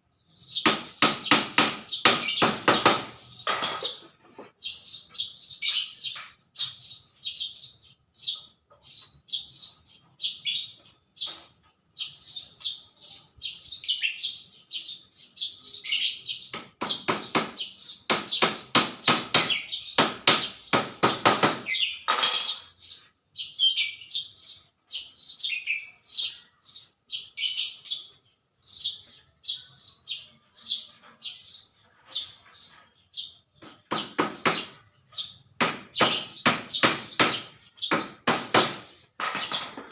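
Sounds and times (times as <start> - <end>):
small birds chirping: 0.0 - 39.9
rapid sharp knocks: 0.6 - 3.9, 16.5 - 21.8, 33.6 - 34.9, 35.6 - 39.9.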